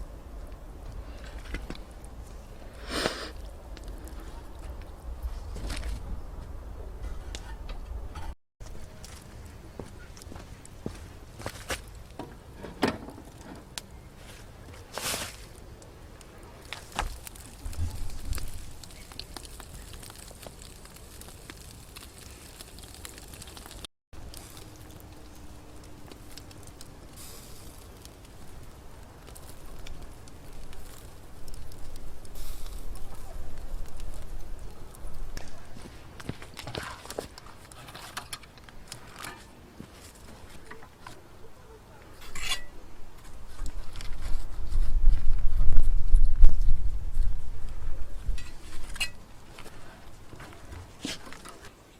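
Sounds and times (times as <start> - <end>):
wood fire crackling: 0.0 - 51.9
scraping rustle: 9.9 - 15.6, 31.7 - 41.3, 42.0 - 46.6, 47.7 - 51.8.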